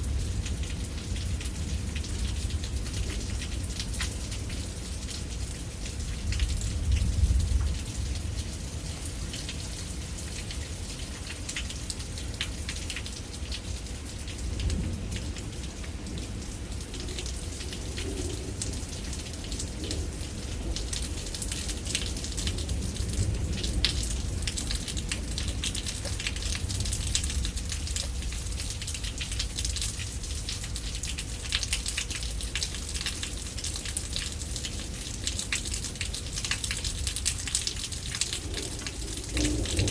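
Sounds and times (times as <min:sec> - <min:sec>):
steady rain falling: 0:00.0 - 0:39.9
low rumble: 0:37.8 - 0:39.9.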